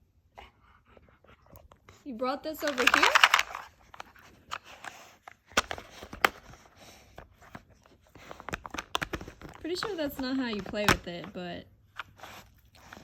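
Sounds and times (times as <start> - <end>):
dog chewing and pawing a toy: 0.3 - 13.0
crinkly rattle: 2.5 - 5.8.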